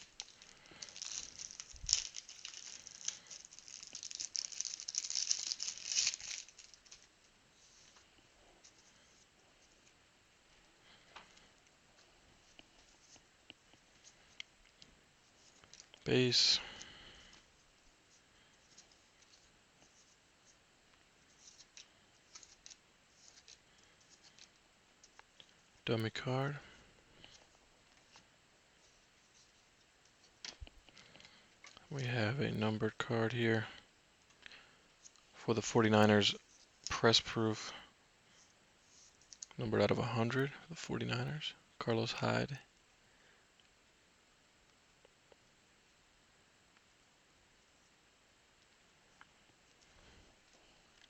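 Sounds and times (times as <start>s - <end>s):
plastic sleeves crinkling: 0.0s - 10.0s, 21.2s - 26.2s.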